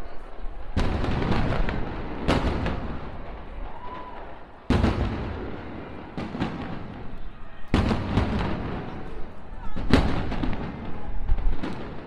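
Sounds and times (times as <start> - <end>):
fireworks exploding: 0.3 - 12.0.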